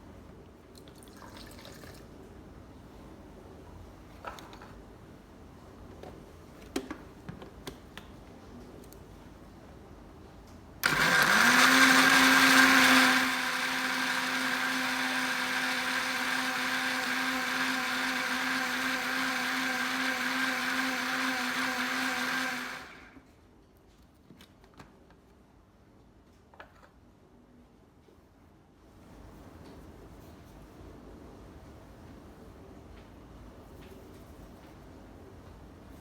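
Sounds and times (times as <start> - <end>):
kitchen grinder motor whirring: 10.8 - 23.2.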